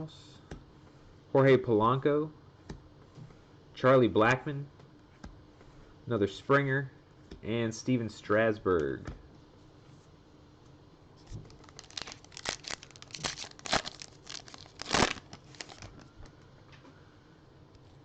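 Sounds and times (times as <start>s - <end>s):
plastic wrapper crinkling and tearing: 11.4s - 16.1s.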